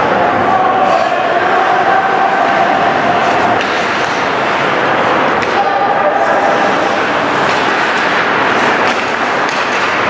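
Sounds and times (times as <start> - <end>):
arena crowd din: 0.0 - 10.0.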